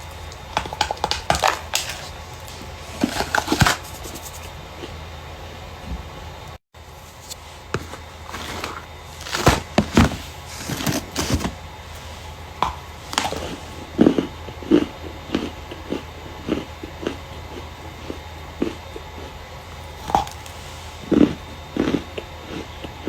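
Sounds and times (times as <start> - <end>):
starch crunching and crackling: 0.0 - 4.5, 6.9 - 14.3, 19.8 - 22.7.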